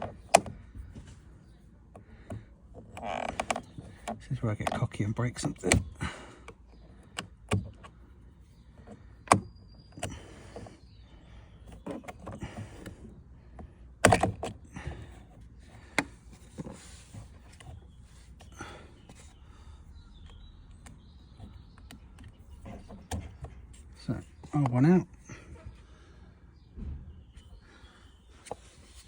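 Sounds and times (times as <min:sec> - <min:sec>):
plastic clicks and knocks: 0:00.0 - 0:01.2, 0:01.9 - 0:08.0, 0:11.7 - 0:15.2, 0:20.1 - 0:24.9.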